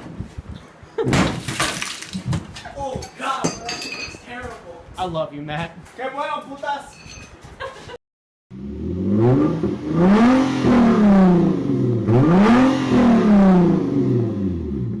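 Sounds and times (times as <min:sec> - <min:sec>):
engine revving: 0:08.5 - 0:15.0.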